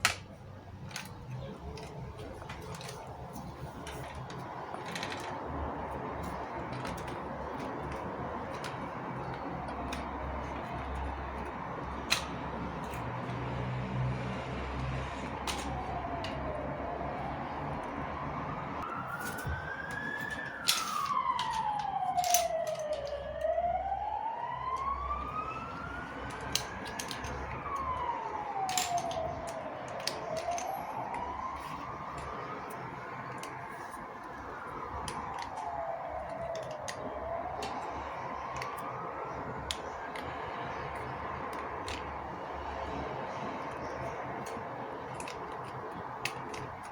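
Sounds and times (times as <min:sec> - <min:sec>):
siren wailing up and down: 0:13.4 - 0:43.3.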